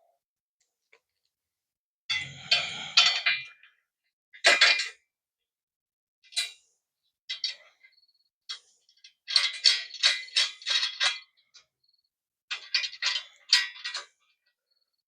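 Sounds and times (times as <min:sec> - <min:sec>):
metal wrenches clinking: 0:04.4 - 0:05.0, 0:08.5 - 0:11.4, 0:12.5 - 0:14.2.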